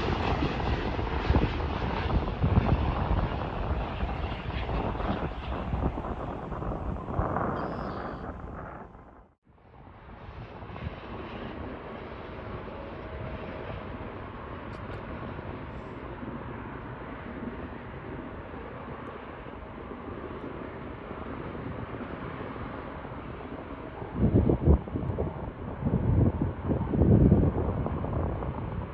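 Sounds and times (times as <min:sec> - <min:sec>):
wind gust on microphone: 0:00.0 - 0:16.6, 0:23.9 - 0:28.9
jet engines rushing: 0:00.0 - 0:28.9.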